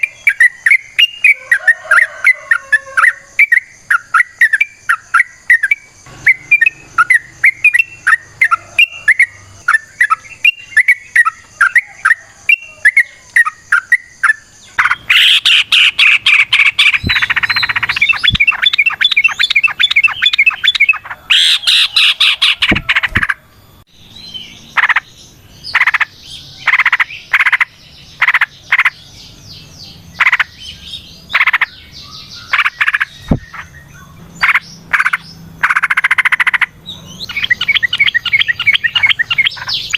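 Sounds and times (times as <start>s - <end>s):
bird singing rapid chirping notes: 0.0s - 39.9s.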